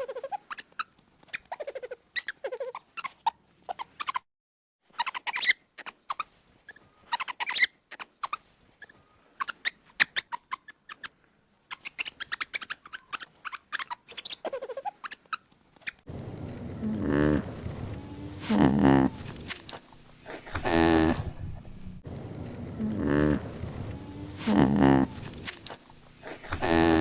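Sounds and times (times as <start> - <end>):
small animal squeaks and chirps: 0.0 - 4.3, 4.9 - 11.1, 11.7 - 16.0.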